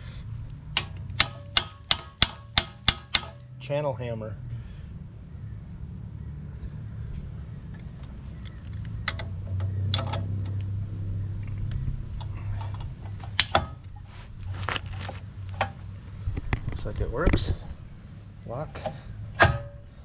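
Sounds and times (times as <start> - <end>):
low hum: 0.0 - 20.0
metal clanks and clicks: 0.7 - 3.4, 8.7 - 10.6, 18.7 - 19.8.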